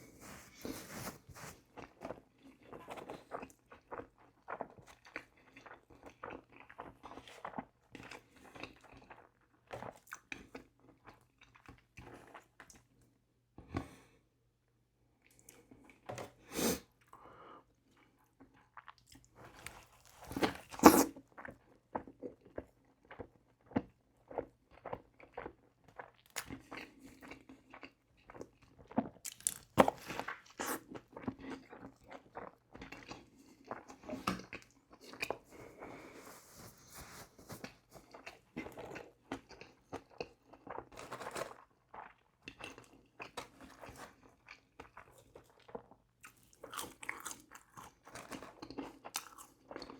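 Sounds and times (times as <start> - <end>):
crunchy bites and chewing: 29.3 - 31.8, 46.2 - 49.9.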